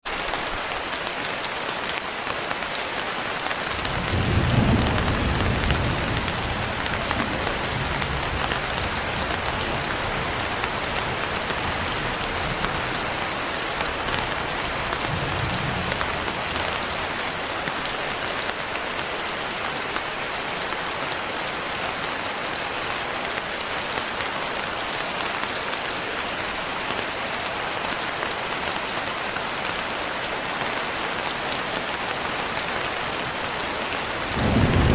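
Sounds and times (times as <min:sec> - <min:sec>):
steady rain falling: 0:00.0 - 0:34.9
thunder rumbling: 0:03.7 - 0:13.3, 0:34.0 - 0:34.9.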